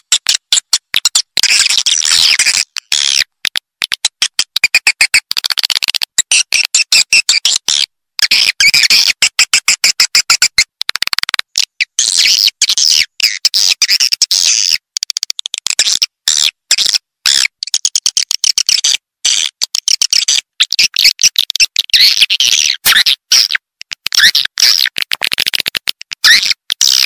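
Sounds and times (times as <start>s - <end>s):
rattle of clicks: 0.0s - 6.8s, 14.9s - 16.0s, 23.8s - 27.0s.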